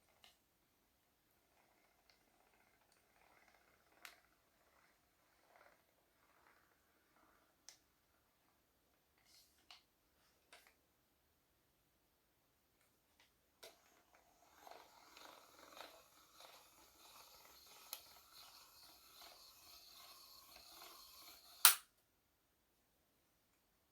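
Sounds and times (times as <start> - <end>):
loud sharp snap: 21.6 - 21.9.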